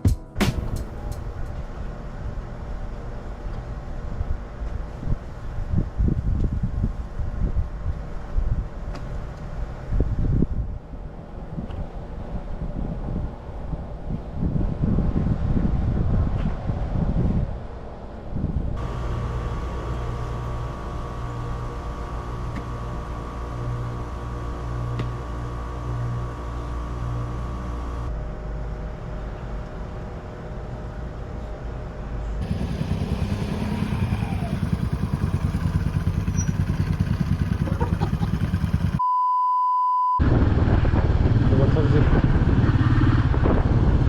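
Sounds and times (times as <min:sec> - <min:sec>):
motorcycle engine running: 0:18.8 - 0:28.1, 0:32.4 - 0:39.0.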